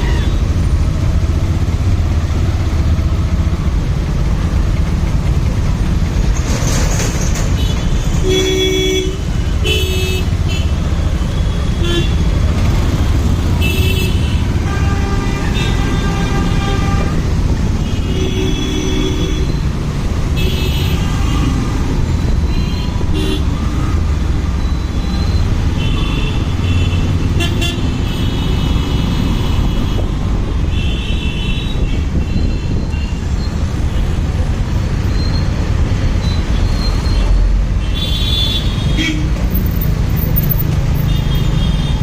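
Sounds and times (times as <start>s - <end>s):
street traffic rumble: 0.0s - 42.0s
vehicle horns honking: 7.6s - 12.3s, 13.5s - 19.6s, 22.5s - 23.5s, 25.7s - 33.3s, 37.2s - 39.3s.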